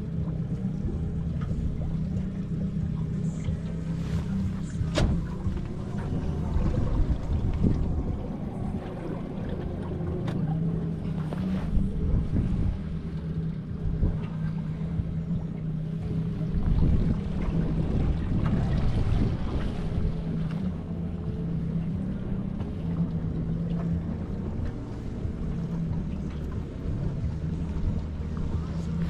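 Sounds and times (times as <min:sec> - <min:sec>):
outboard motor humming: 0:00.0 - 0:29.0
wind rumbling on microphone: 0:00.0 - 0:29.0.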